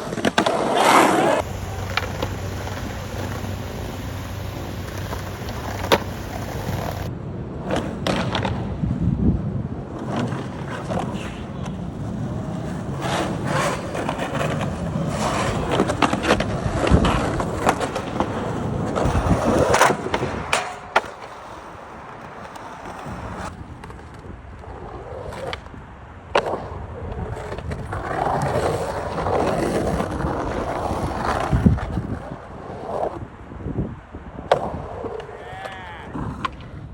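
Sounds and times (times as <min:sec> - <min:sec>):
skateboard clacking: 0:00.0 - 0:07.1, 0:13.0 - 0:25.6, 0:34.5 - 0:36.8
skateboard wheels rolling: 0:00.0 - 0:36.9.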